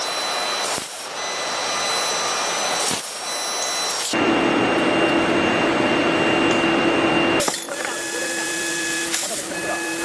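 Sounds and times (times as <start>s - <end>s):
welding machine loud hiss: 0.0s - 4.2s, 7.4s - 10.0s.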